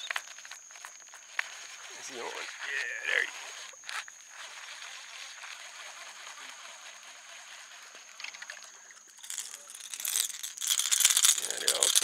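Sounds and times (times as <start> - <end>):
water splashing and trickling: 4.8 - 12.0.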